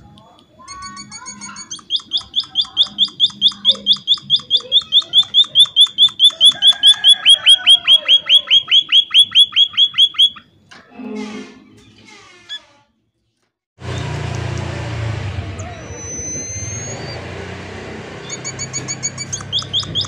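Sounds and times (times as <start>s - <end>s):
bird chirping sharply: 0.8s - 10.5s, 15.5s - 17.5s, 18.2s - 20.0s
soft scratchy bird notes: 18.3s - 20.0s.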